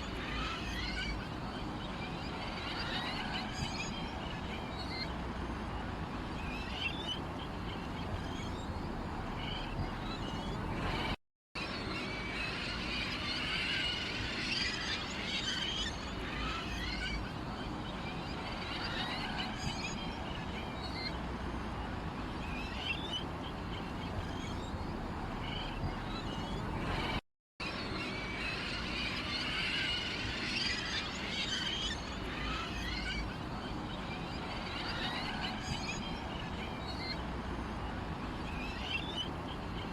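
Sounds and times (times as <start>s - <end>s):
small birds chirping: 6.4s - 11.2s, 22.4s - 27.2s.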